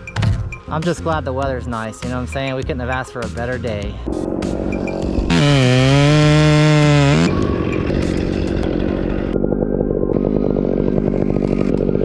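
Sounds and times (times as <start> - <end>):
chainsaw revving: 4.4 - 12.0.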